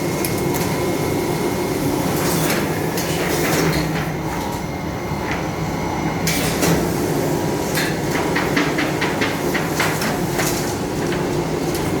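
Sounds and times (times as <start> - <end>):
printing machine hum: 0.0 - 12.0
sharp mechanical clicks and clacks: 7.7 - 12.0.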